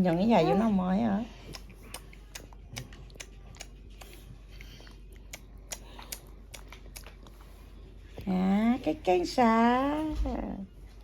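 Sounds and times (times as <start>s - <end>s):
baby eating with mouth smacks: 1.4s - 8.3s.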